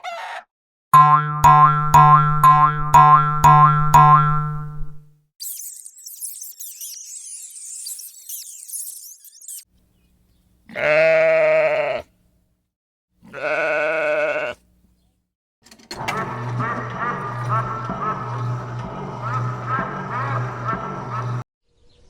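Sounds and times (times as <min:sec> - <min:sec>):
high thin chirping: 0:05.4 - 0:09.7
livestock bleating: 0:10.7 - 0:12.1, 0:13.2 - 0:14.6.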